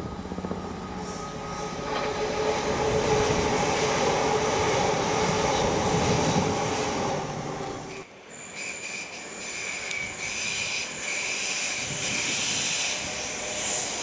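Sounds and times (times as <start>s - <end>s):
steady train hum: 0.0s - 14.0s
train wheels rumbling on rail: 0.0s - 14.0s
faint wheel squeal: 8.3s - 14.0s.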